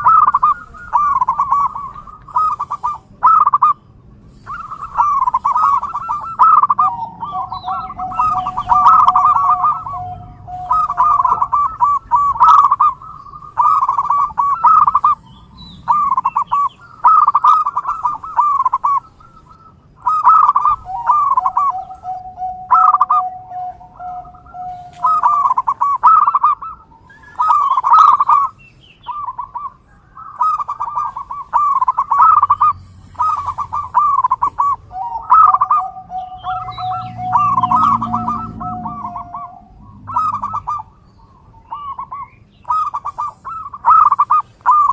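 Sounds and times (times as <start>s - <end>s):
doves cooing: 0.0s - 44.9s
steady held tone: 4.4s - 15.2s, 20.1s - 26.6s, 31.5s - 41.0s.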